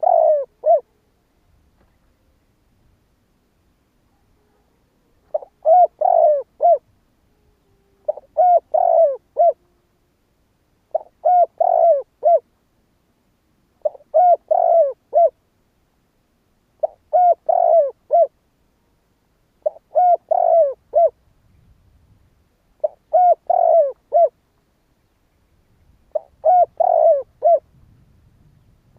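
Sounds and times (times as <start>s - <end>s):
dove cooing: 0.0s - 1.0s, 4.4s - 9.9s, 10.9s - 12.5s, 13.8s - 15.4s, 16.8s - 18.4s, 19.6s - 21.2s, 22.8s - 24.4s, 26.1s - 27.7s.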